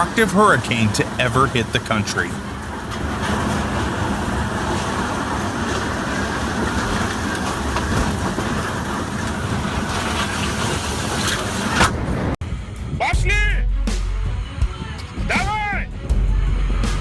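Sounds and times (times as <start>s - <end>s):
storm wind and rain: 0.0s - 12.4s.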